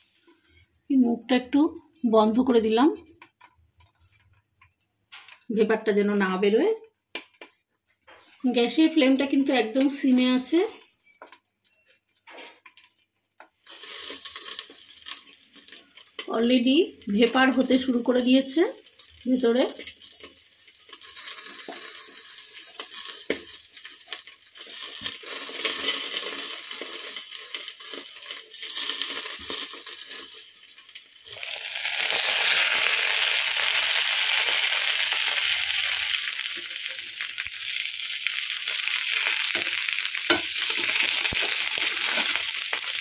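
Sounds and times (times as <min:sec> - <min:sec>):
fish sizzling in oil: 0:12.7 - 0:43.0.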